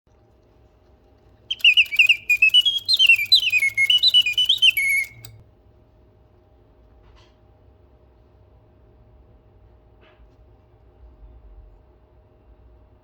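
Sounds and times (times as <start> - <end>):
mechanical bird whistling trills: 1.5 - 5.3.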